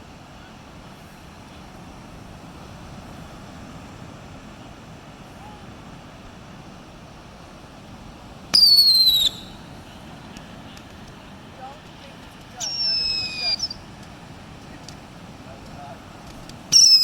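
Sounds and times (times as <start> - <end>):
background hiss: 0.0 - 17.0
whistling firework shriek: 8.6 - 9.6, 12.6 - 13.8, 16.7 - 17.0.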